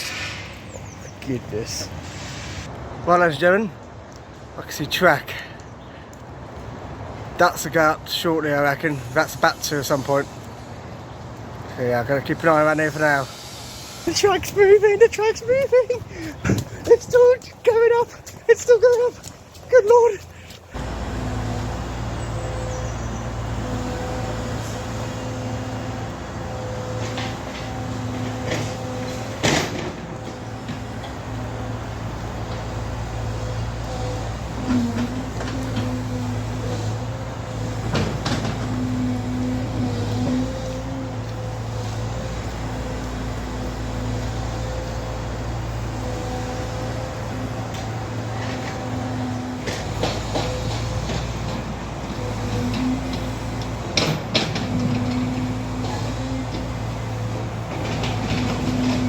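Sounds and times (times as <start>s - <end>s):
large engine running: 20.3s - 59.0s.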